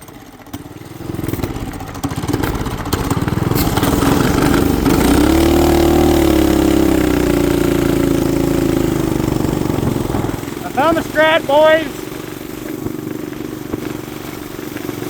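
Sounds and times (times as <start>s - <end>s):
small engine revving: 0.8s - 10.6s.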